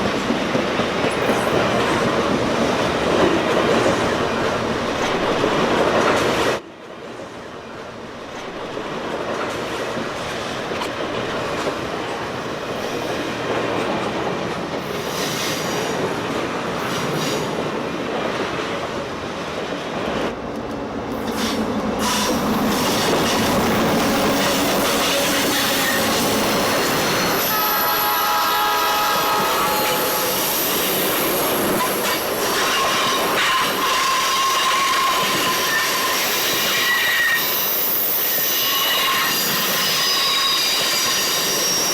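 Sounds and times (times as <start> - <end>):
train wheels clicking over rail joints: 19.9 - 27.6
train wheels squealing: 21.2 - 41.9.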